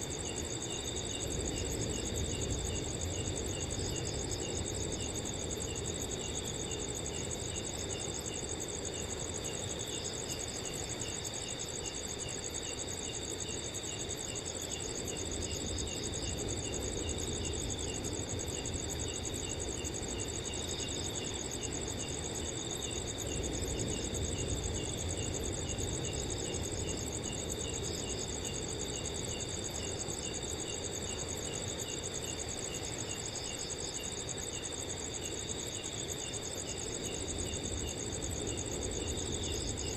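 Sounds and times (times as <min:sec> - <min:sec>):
low rush of wind: 0:00.0 - 0:12.2, 0:36.3 - 0:39.9
crickets chirping: 0:00.0 - 0:39.9.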